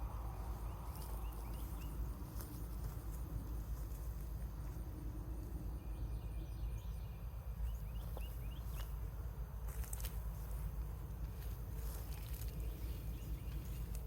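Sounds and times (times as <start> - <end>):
steady low rumble: 0.0 - 14.0
small bird chirping: 0.1 - 2.6, 5.8 - 9.0, 11.8 - 14.0
light clicks and rustles: 9.7 - 14.0.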